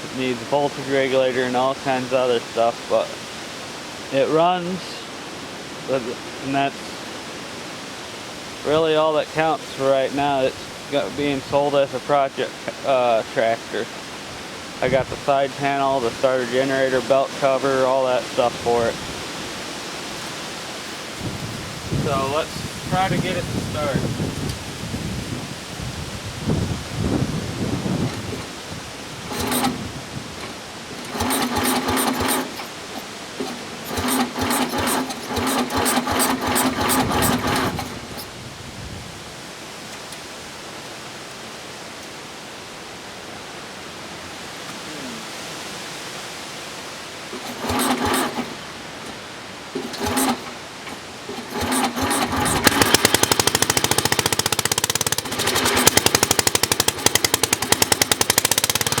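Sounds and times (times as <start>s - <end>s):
engine starter cranking: 20.1s - 23.4s, 29.3s - 38.4s, 47.3s - 59.0s
small engine running: 20.1s - 23.4s, 29.3s - 29.9s, 31.0s - 38.4s, 47.3s - 59.0s.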